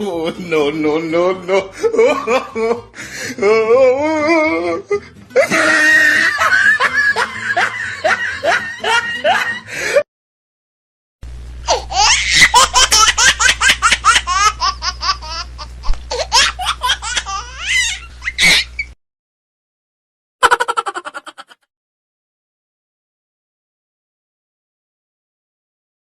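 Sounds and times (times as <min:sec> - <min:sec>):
person laughing: 0:00.1 - 0:10.0, 0:11.7 - 0:18.8, 0:20.4 - 0:21.7
steady low hum: 0:11.2 - 0:19.0.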